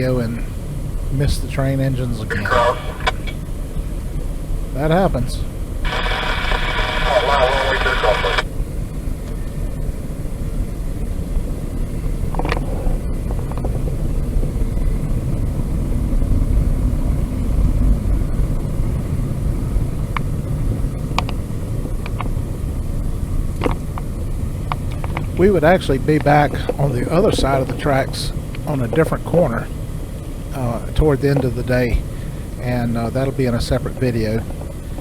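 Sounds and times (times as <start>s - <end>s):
train wheels rumbling on rails: 9.0s - 35.0s.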